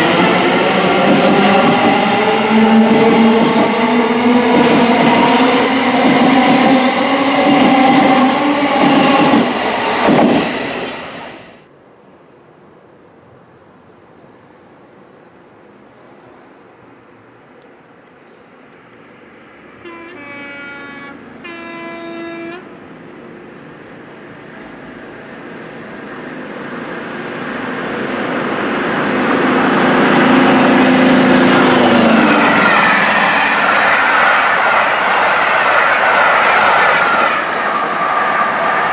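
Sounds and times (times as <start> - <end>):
train passing with rail noise: 0.0 - 38.9
train horn blasts: 19.8 - 22.7.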